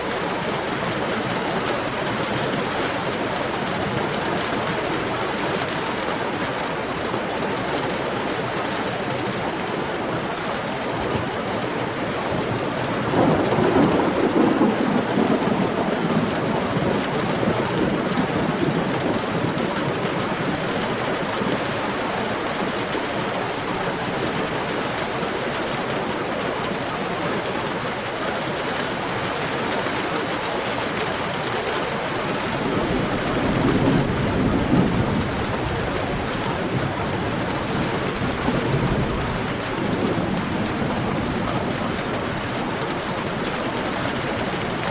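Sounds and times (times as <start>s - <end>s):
heavy rain: 0.0s - 44.9s
thunder rumbling: 11.2s - 25.8s, 31.9s - 44.9s.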